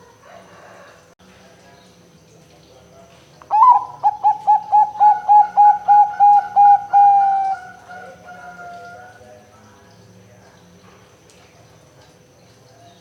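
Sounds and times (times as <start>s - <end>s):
dove cooing: 3.5s - 9.2s.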